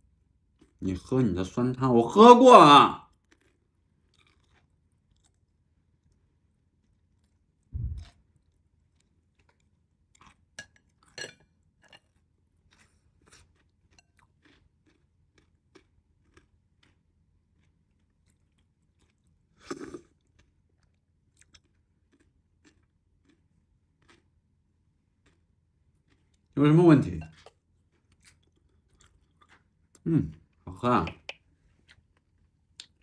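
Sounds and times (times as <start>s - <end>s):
person chewing: 0.5s - 0.8s, 3.1s - 26.6s, 27.2s - 33.0s
food crunching: 3.0s - 33.0s
slurping soup from a spoon: 19.6s - 20.3s.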